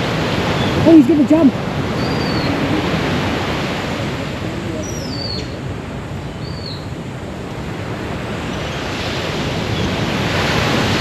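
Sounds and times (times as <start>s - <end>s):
ocean surf: 0.0s - 11.0s.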